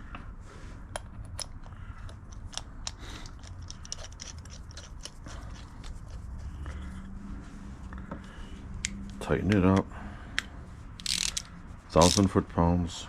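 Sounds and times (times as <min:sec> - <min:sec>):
small metal parts clicking: 0:00.9 - 0:05.9, 0:11.0 - 0:12.3.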